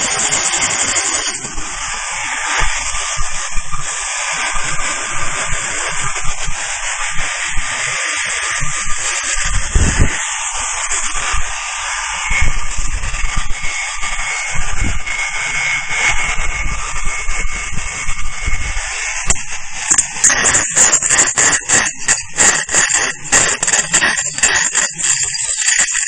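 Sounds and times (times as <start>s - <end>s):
machine hiss with high tone: 0.0s - 26.0s.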